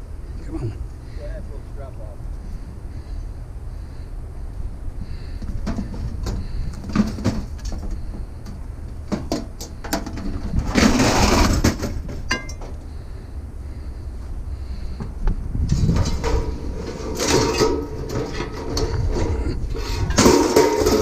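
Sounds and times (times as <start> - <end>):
scrap metal clanking: 9.1 - 12.9, 15.7 - 21.0
low rumble: 10.2 - 21.0
metallic ring: 12.3 - 12.6.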